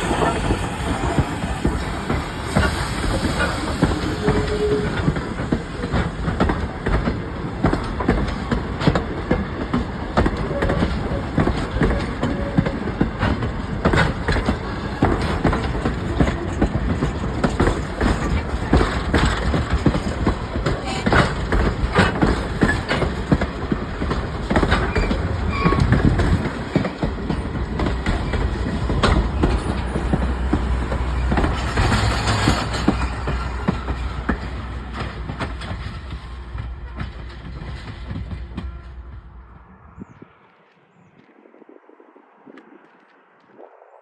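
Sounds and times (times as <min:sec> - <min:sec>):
wheel squealing on rail: 0:00.0 - 0:06.8, 0:10.2 - 0:39.1
wheels clicking over rail joints: 0:00.0 - 0:39.0
train rumbling past: 0:00.0 - 0:44.0.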